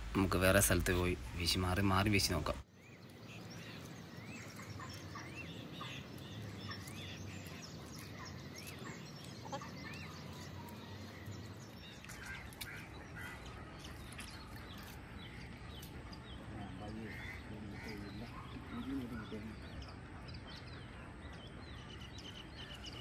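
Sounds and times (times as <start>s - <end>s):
bird calling: 2.7s - 23.0s.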